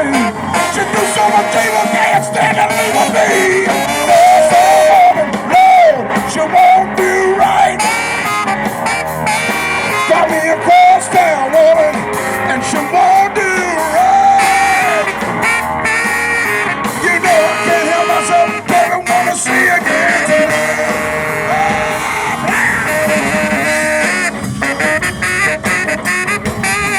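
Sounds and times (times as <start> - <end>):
person singing: 0.0 - 8.4, 9.9 - 15.6, 16.9 - 24.3
electric guitar: 0.0 - 26.9
live rock band playing: 0.0 - 26.9.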